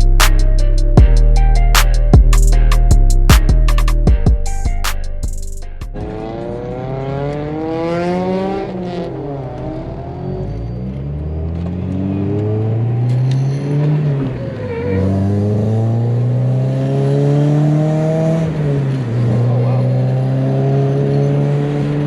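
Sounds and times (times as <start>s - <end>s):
music beat: 0.0s - 6.5s
car engine accelerating: 5.8s - 22.0s.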